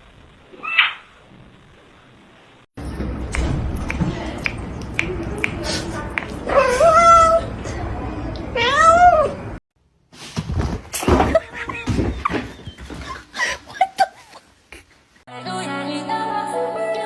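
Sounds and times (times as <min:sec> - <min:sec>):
voices: 0:02.8 - 0:09.6
cat meowing: 0:08.6 - 0:09.4.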